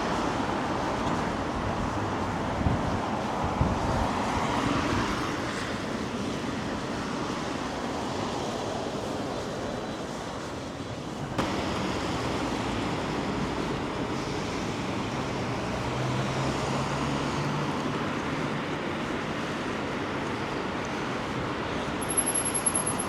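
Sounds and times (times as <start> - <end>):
rain: 0.0 - 6.3, 11.2 - 23.0
traffic: 0.0 - 23.0.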